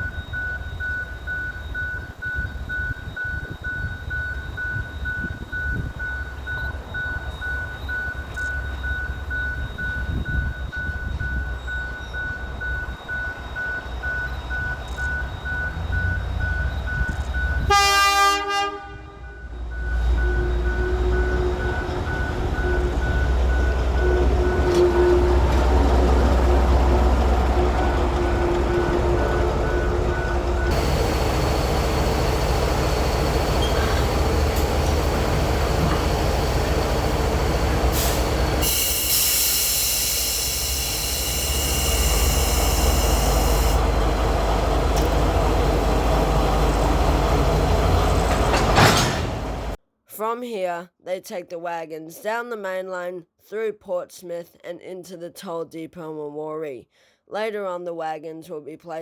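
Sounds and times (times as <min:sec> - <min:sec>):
diesel locomotive engine rumble: 0:00.0 - 0:49.8
locomotive horn blast: 0:17.6 - 0:49.7.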